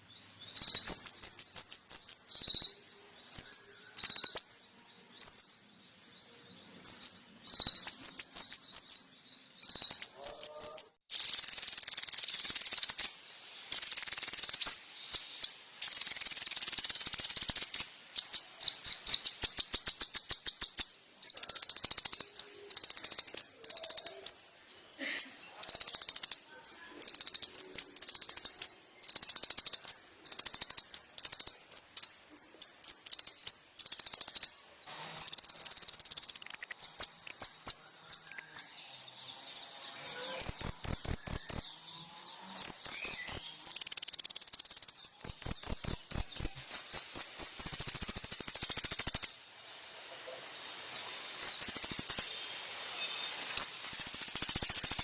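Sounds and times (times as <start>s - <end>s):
sunbird high fast trills: 40.0s - 49.4s.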